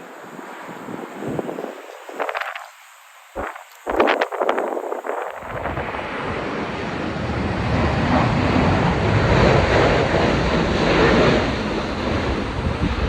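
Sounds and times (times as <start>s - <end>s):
wind buffeting microphone: 0.0s - 2.8s, 3.4s - 13.0s
jet airliner engine noise: 0.0s - 13.0s.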